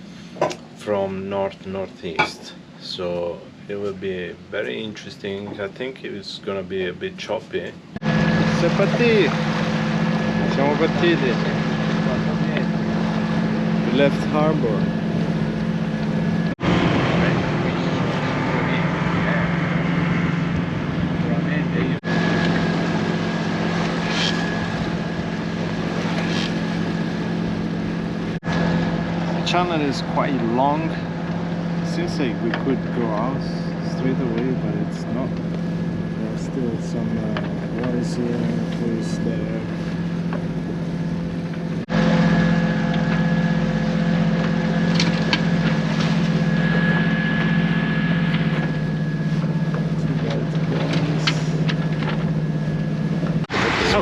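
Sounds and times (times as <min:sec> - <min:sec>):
boat engine humming: 0:00.0 - 0:54.0.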